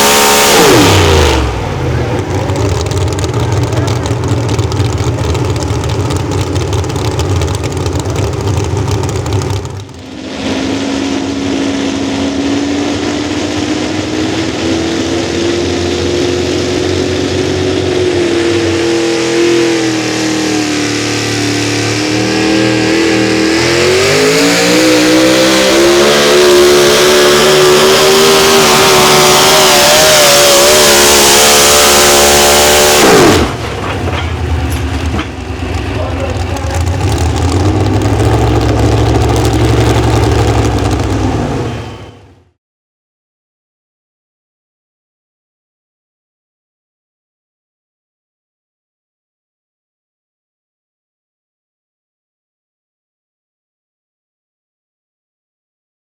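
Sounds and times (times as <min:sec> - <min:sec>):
tractor engine running hard: 0:00.0 - 0:42.4.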